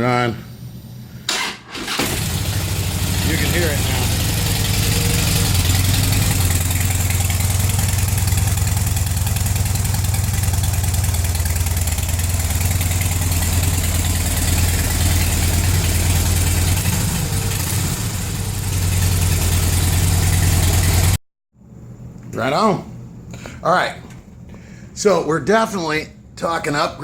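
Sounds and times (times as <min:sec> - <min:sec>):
motorcycle engine idling: 0:02.0 - 0:21.2.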